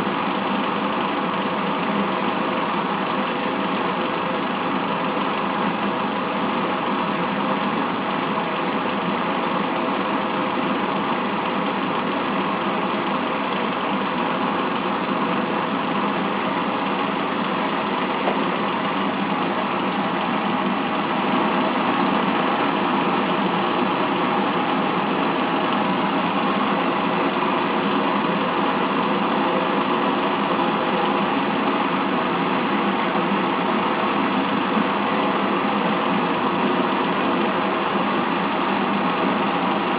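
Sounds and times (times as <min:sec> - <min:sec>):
stirling engine whirring: 0:05.9 - 0:33.8.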